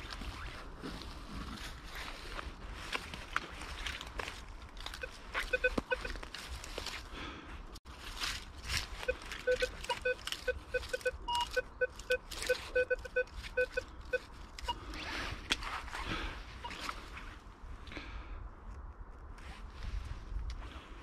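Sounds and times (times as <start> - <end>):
coil scraping the ground: 0.0 - 7.1
metal detector beeping: 5.0 - 6.2, 9.0 - 14.8.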